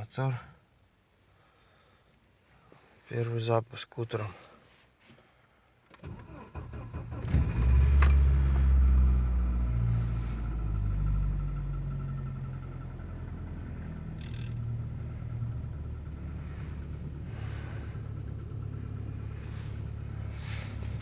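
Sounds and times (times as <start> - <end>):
car engine starting and idling: 5.9 - 21.0.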